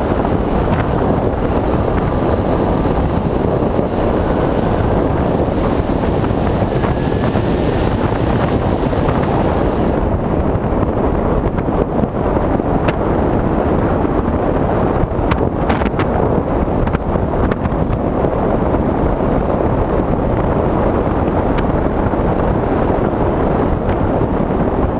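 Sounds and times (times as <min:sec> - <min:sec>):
model plane motor: 0:00.0 - 0:10.1
wind rush: 0:00.0 - 0:24.9.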